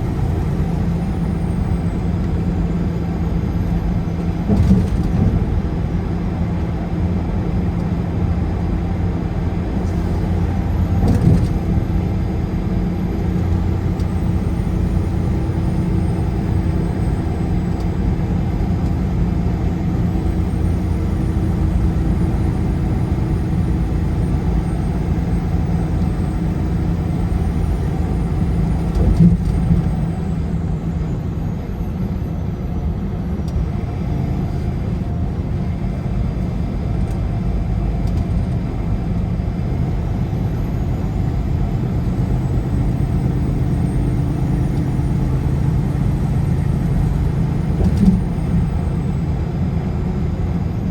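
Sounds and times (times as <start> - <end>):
road and engine rumble: 0.0 - 50.9
car bumps: 47.7 - 48.7.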